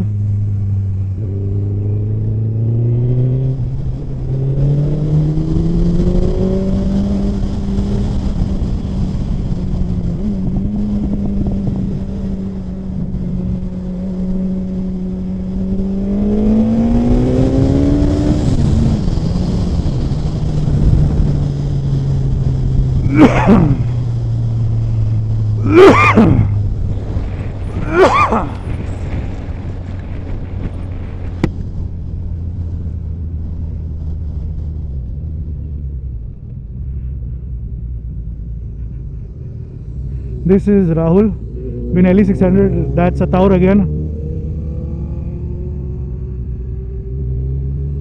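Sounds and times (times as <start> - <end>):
motorcycle engine at speed: 0.0 - 48.0
short bursts of voice: 27.8 - 28.6.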